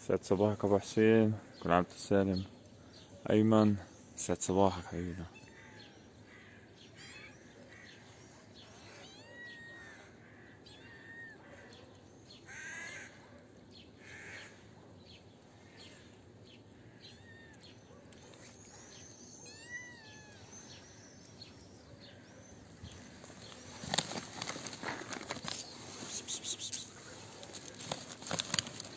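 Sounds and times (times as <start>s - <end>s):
birds calling and chirping: 0.0s - 28.9s
cats meowing: 5.3s - 6.1s, 6.8s - 8.0s, 8.7s - 11.8s, 16.8s - 21.0s.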